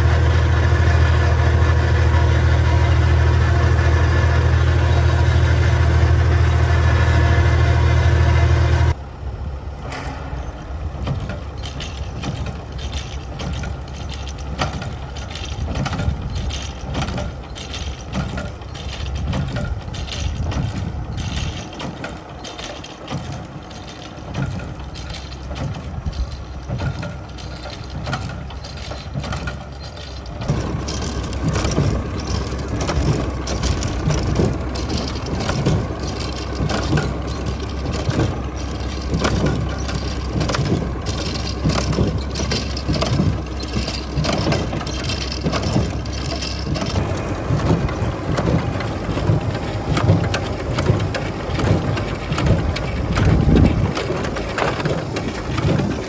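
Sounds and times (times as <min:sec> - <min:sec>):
hay baler working: 0:00.0 - 0:56.0
tractor engine running: 0:00.0 - 0:56.0.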